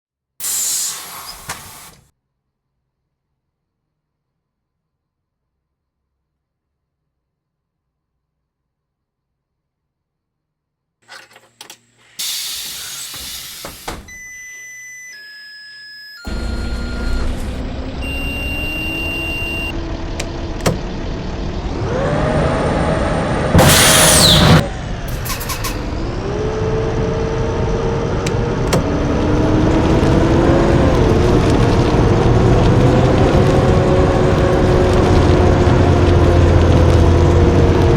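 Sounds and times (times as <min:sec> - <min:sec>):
loud air hiss: 0:00.4 - 0:02.1, 0:12.1 - 0:14.1, 0:23.6 - 0:25.7
high electronic tones: 0:15.0 - 0:19.8
clicks: 0:16.3 - 0:21.0, 0:28.2 - 0:29.0
bus engine running loudly: 0:16.3 - 0:37.9.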